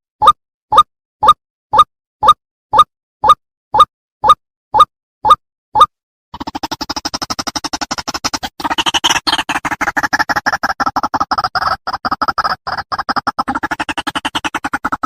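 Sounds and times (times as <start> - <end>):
bird calling harsh stuttering notes: 6.4 - 15.0.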